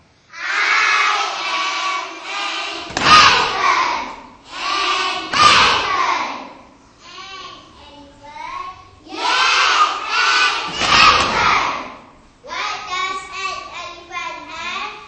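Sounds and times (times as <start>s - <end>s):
children chanting together: 0.3s - 7.8s, 8.6s - 13.8s
thuds: 2.8s - 3.7s, 10.6s - 11.6s.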